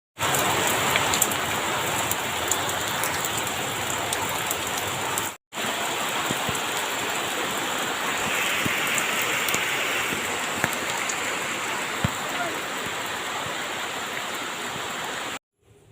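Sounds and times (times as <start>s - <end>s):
steady rain falling: 0.2s - 15.4s.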